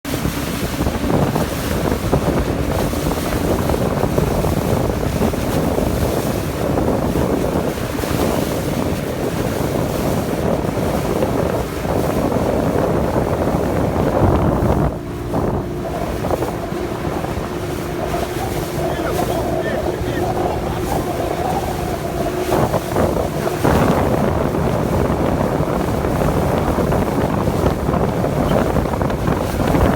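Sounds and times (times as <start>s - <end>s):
boat engine running: 0.0s - 29.9s
water rushing: 0.0s - 29.9s
wind buffeting microphone: 0.0s - 29.9s.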